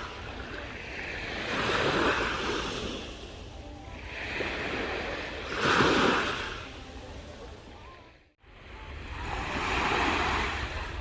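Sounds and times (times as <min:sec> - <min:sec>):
sea waves washing ashore: 0:00.0 - 0:11.0
wind rumble on microphone: 0:00.0 - 0:11.0.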